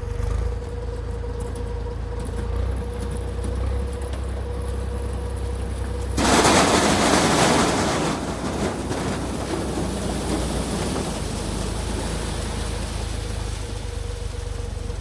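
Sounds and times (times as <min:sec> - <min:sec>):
tractor and harvester running: 0:00.0 - 0:15.0
loud rushing rattling noise: 0:06.2 - 0:13.6.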